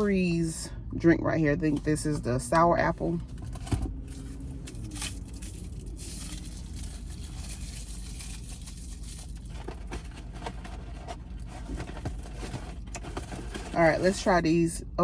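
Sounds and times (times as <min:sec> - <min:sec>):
food packaging rustling: 0:04.0 - 0:14.1.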